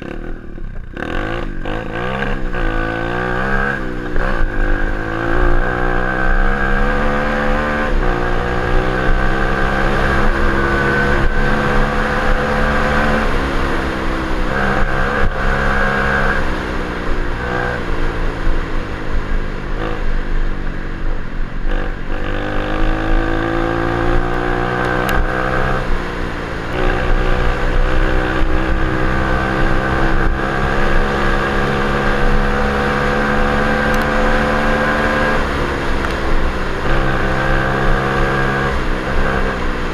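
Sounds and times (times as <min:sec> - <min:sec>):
dirt bike engine revving: 0:00.0 - 0:18.7, 0:21.7 - 0:39.9.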